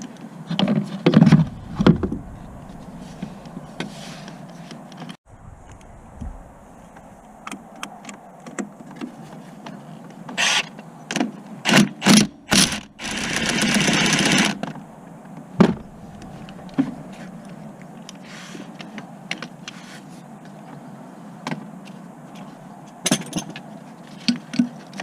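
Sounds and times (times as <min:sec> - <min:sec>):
power tool running: 0:12.5 - 0:14.6.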